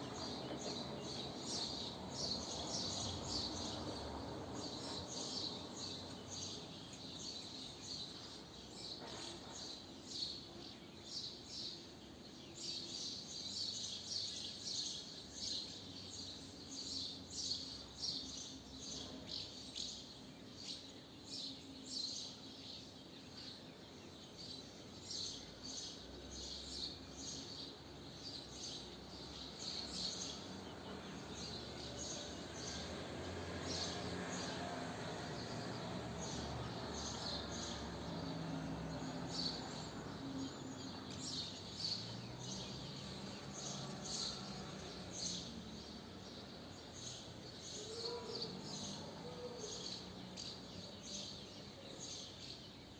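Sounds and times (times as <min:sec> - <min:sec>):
faint background noise: 0:00.0 - 0:52.9
swallows twittering: 0:35.4 - 0:52.9.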